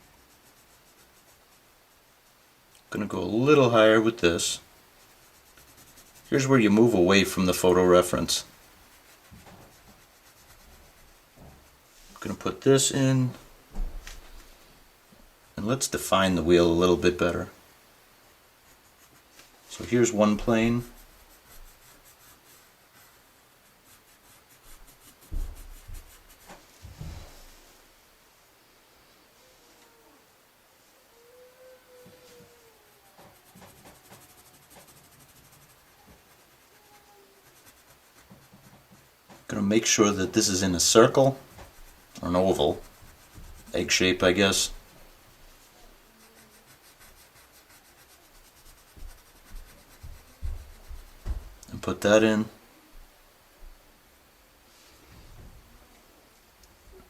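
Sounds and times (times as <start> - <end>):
pencil scratching on paper: 0.0 - 2.2, 4.4 - 11.8, 18.6 - 19.4, 20.1 - 26.6, 33.2 - 39.5, 40.2 - 44.9, 45.5 - 51.4
soft low thumps: 49.0 - 51.6.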